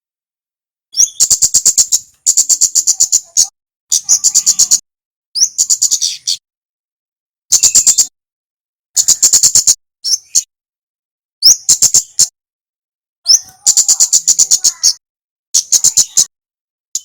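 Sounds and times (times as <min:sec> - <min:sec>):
songbird chipping calls: 0:01.0 - 0:04.8, 0:05.4 - 0:06.4, 0:07.5 - 0:08.1, 0:09.0 - 0:10.5, 0:13.3 - 0:15.0.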